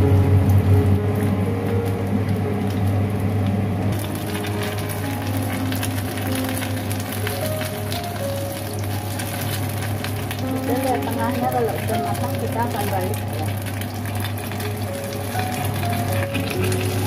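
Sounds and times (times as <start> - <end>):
steady low hum: 0.0 - 17.0
batter sizzling in a pan: 3.9 - 17.0.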